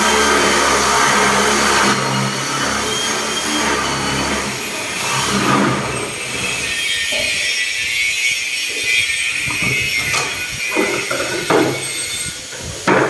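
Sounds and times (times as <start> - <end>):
electric drill boring wood: 0.0 - 13.0.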